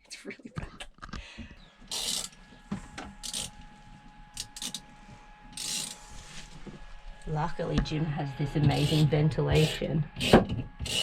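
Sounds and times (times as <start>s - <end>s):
rubber hose scraping and rubbing: 1.9s - 7.5s.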